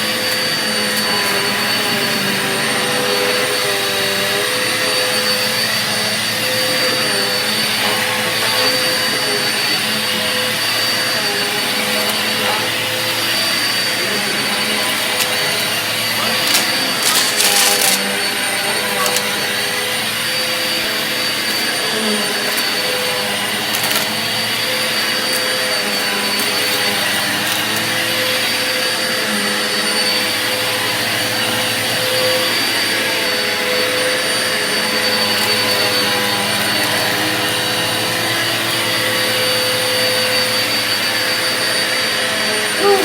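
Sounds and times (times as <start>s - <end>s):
vacuum cleaner running: 0.0s - 43.0s
debris clicking in vacuum: 16.4s - 18.1s, 23.7s - 24.2s.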